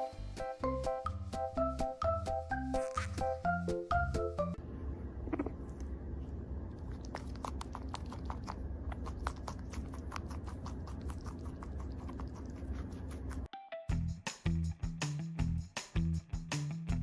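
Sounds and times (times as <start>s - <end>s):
steady low hum: 3.0s - 14.2s
animal chewing: 6.8s - 13.5s.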